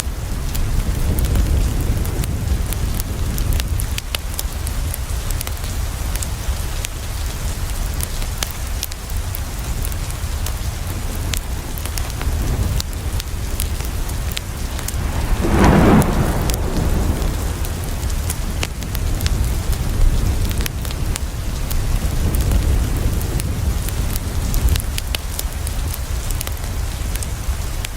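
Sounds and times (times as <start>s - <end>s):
rain on a window: 0.0s - 27.9s
wood fire crackling: 9.1s - 27.9s
thunder rolling: 14.2s - 20.9s.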